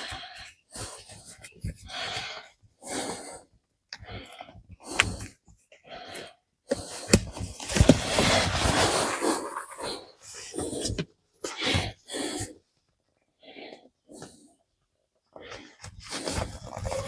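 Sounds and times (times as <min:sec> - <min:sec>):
rustling: 0:06.9 - 0:11.0.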